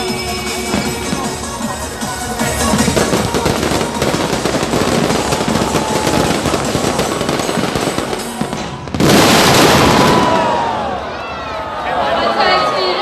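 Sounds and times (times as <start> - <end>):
fireworks crackling: 0.0 - 10.9
loud firework burst: 2.5 - 11.0.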